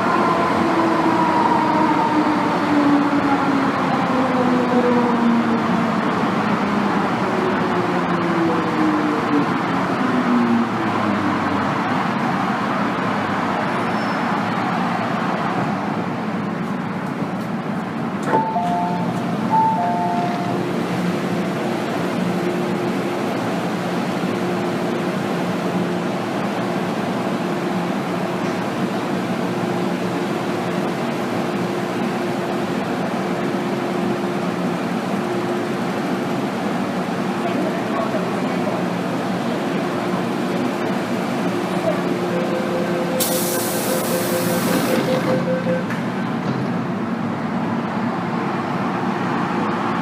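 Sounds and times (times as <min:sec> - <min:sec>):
train running rumble: 0:05.0 - 0:50.0
two-tone electronic chime: 0:18.4 - 0:20.6.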